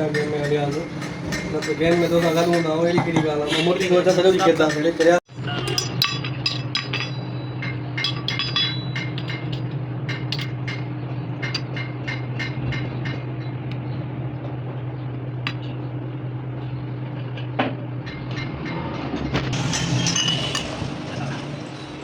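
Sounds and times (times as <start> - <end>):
metal clinks and taps: 0.0 - 13.9, 15.4 - 15.9, 17.2 - 18.9
low machine hum: 0.0 - 22.0.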